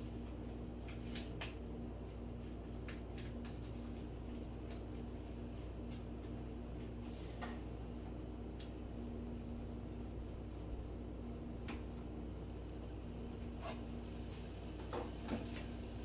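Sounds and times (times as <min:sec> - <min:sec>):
kettle humming: 0:11.3 - 0:16.0.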